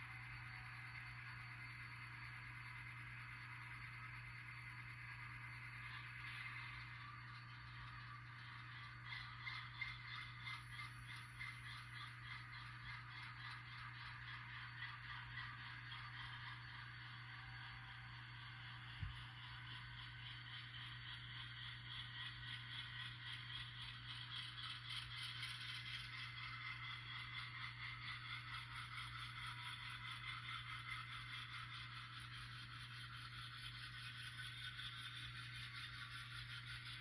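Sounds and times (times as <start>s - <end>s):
model train wheels rattling: 0.0s - 37.0s.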